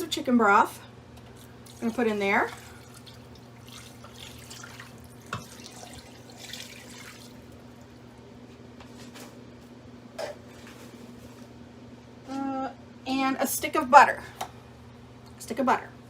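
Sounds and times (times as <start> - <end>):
liquid pouring and splashing: 1.4 - 8.0.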